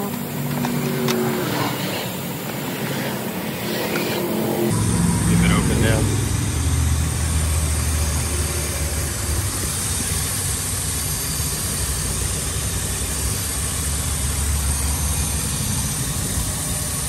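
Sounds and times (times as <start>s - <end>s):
car engine idling: 4.5s - 17.0s.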